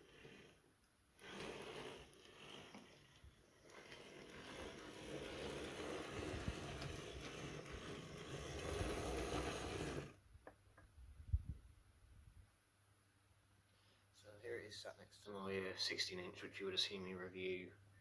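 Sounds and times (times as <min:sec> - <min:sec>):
model locomotive motor running: 0:00.0 - 0:10.2.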